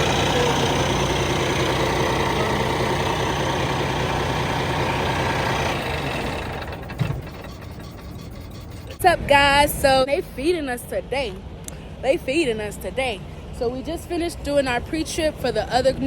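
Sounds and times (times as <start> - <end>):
heavy truck engine running: 0.0 - 9.3.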